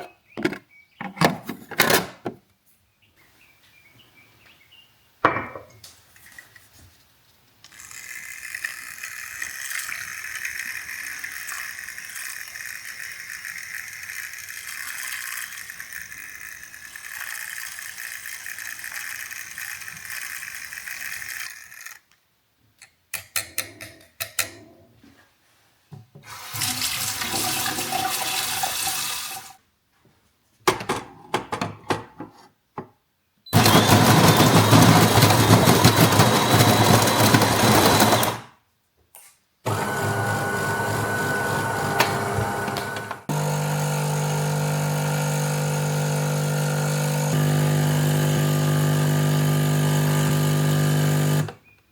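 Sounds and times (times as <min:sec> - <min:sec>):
coffee machine humming: 0:26.4 - 0:29.5, 0:33.6 - 0:38.4, 0:39.7 - 0:51.6.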